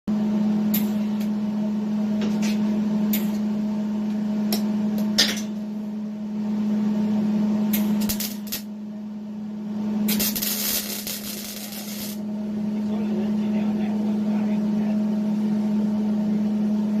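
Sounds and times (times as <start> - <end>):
welder electrical hum: 0.1 - 17.0
welding arc pops: 7.7 - 8.7, 10.0 - 12.2.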